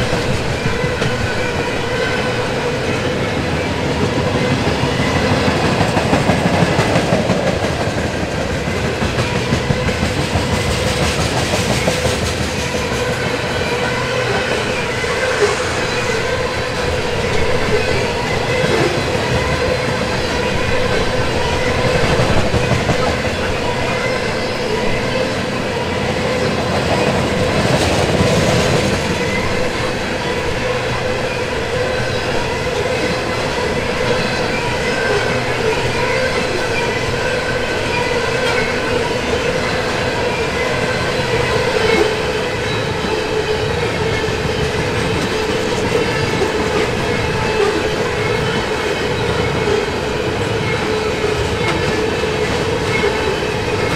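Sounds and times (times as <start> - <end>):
clickety-clack over rail joints: 0.0 - 14.8, 17.4 - 30.4, 32.0 - 53.9
train wheels rumbling on rails: 0.0 - 53.9
steady tone: 14.2 - 18.0.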